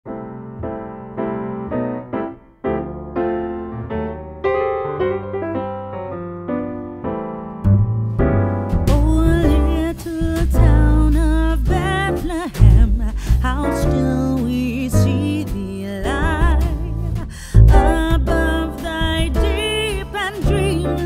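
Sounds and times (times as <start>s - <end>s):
piano chords: 0.1s - 21.0s
bass and band playing: 7.6s - 21.0s
person singing: 8.9s - 21.0s.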